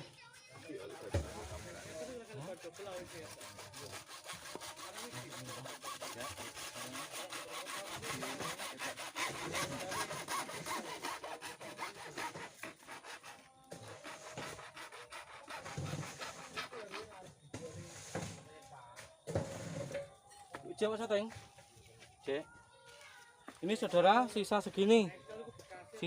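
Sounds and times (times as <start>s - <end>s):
hand saw rasping: 0.8s - 18.4s.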